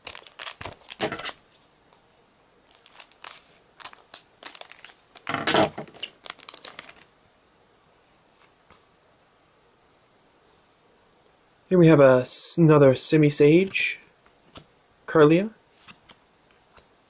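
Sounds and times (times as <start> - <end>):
wrapper tearing and crinkling: 0.0 - 1.5, 2.6 - 7.1.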